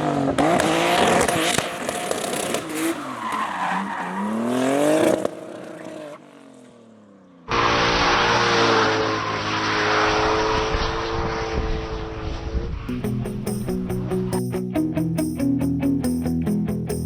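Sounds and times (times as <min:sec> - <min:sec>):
car engine revving: 0:00.0 - 0:03.3, 0:07.5 - 0:14.4
steady drone of held tones: 0:12.9 - 0:17.0.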